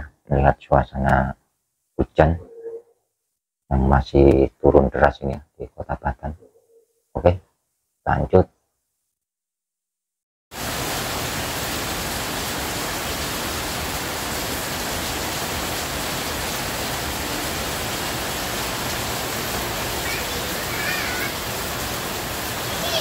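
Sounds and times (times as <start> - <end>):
heavy rain falling: 10.5 - 23.0.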